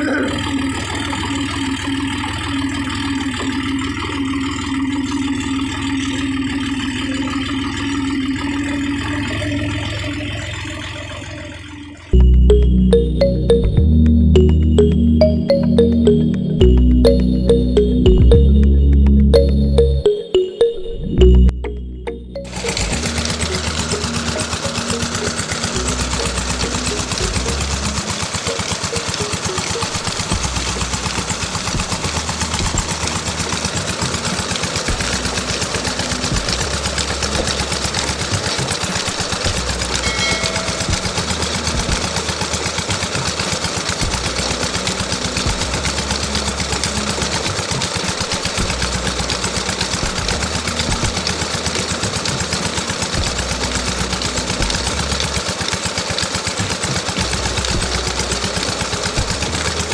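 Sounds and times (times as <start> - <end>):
fast mechanical rattle: 22.6 - 59.9.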